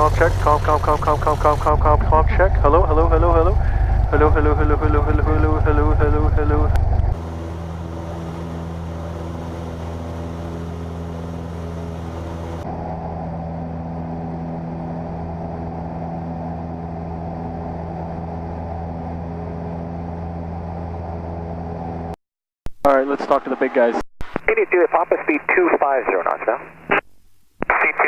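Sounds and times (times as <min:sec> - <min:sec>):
propeller plane engine droning: 0:00.0 - 0:22.2.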